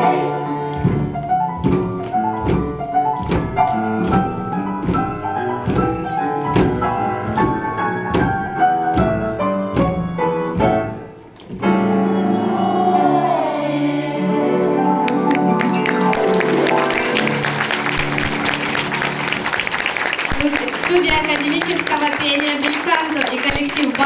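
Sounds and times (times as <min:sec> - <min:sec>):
boogie-woogie piano: 0:00.0 - 0:14.1, 0:14.7 - 0:20.0
choir holding a note: 0:12.0 - 0:15.0.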